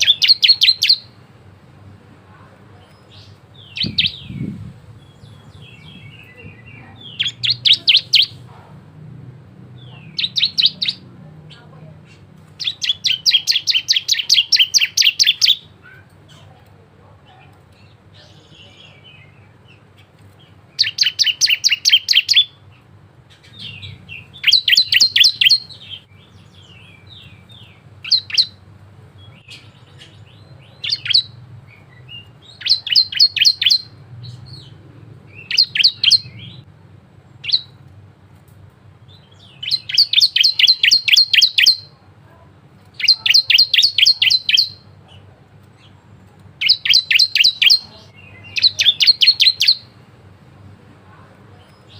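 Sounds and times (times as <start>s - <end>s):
bird singing rapid high chirps: 0.0s - 1.2s, 2.8s - 8.5s, 9.8s - 16.4s, 17.8s - 36.7s, 37.3s - 37.8s, 39.0s - 42.0s, 42.9s - 45.0s, 45.8s - 50.0s
faint low hum: 0.0s - 51.9s.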